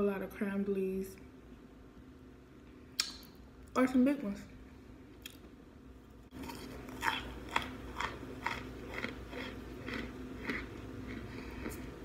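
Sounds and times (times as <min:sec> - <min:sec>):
crisp crunching of chewing: 0:06.3 - 0:12.0.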